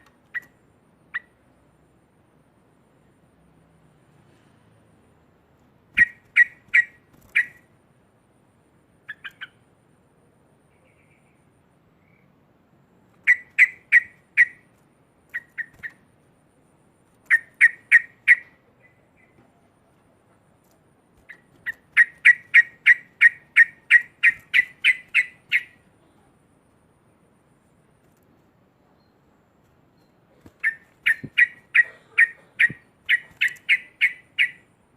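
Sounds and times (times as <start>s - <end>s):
bulbul chattering calls: 13.2s - 14.6s, 17.3s - 19.4s, 21.3s - 25.8s, 30.4s - 34.6s.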